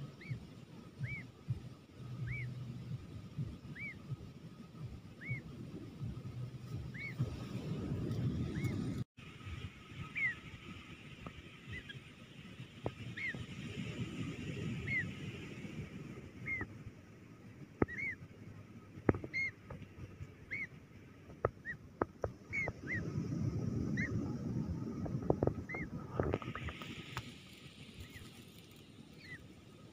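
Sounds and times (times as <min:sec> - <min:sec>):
low rumble of wind: 0:00.0 - 0:29.9
bird calling: 0:00.1 - 0:00.4, 0:01.0 - 0:01.4, 0:02.1 - 0:02.6, 0:03.6 - 0:04.1, 0:05.2 - 0:05.5, 0:06.9 - 0:07.2, 0:08.5 - 0:08.8, 0:17.8 - 0:18.2, 0:19.1 - 0:19.8, 0:20.4 - 0:20.8, 0:22.4 - 0:23.0.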